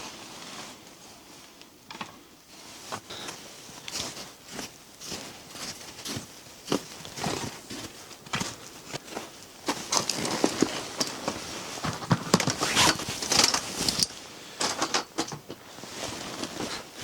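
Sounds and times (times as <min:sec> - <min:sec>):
crunching and rustling: 0:03.6 - 0:14.1.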